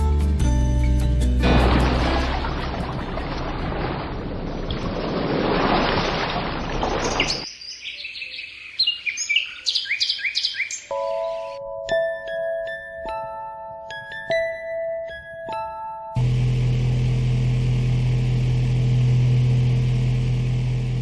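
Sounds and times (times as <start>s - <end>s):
recorded birdsong chirps: 6.5s - 11.8s
lullaby chime notes: 10.9s - 16.2s.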